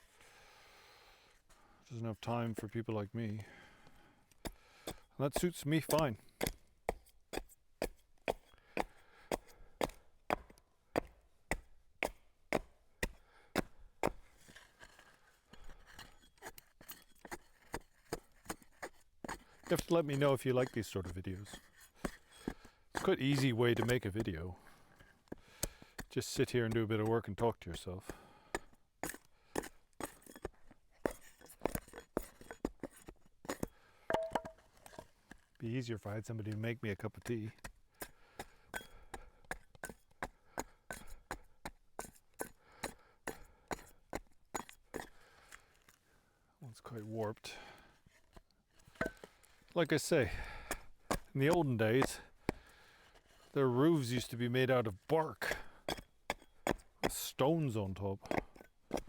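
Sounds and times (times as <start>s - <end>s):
hand tool striking wood: 5.3s - 14.2s, 18.4s - 24.1s, 29.0s - 34.6s, 48.9s - 49.3s, 50.5s - 52.7s, 55.1s - 57.3s, 58.2s - 59.0s.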